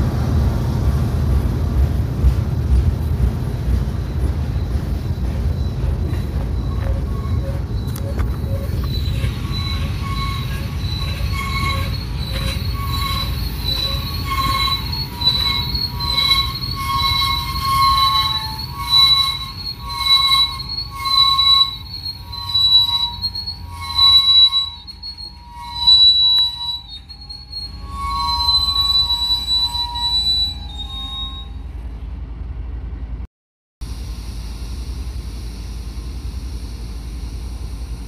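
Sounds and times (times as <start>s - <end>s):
rolling train rumble: 0.0s - 38.0s
train wheels squealing: 2.3s - 32.2s.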